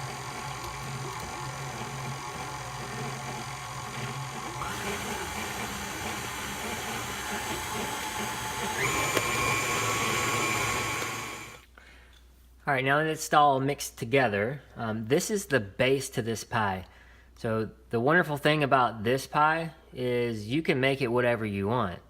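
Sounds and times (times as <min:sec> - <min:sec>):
stand mixer motor whine: 0:00.0 - 0:11.6.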